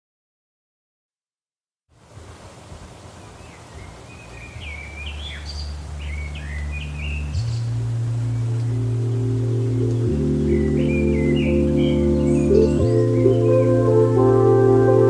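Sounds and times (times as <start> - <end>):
birds chirping: 3.1 - 15.0
low music drone: 5.8 - 15.0.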